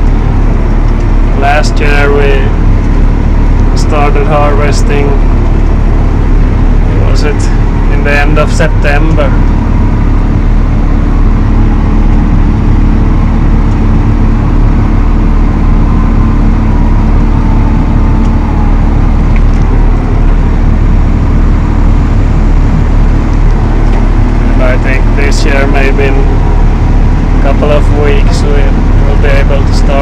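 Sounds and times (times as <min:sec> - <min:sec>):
tractor diesel engine droning: 0:00.0 - 0:30.0.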